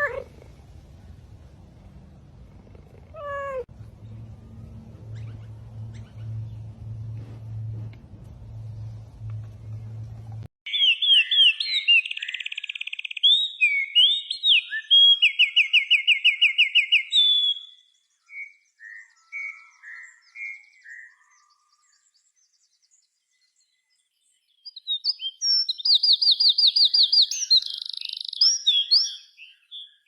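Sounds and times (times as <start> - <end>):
bird singing whistles and trills: 10.7 - 22.7, 24.6 - 30.0.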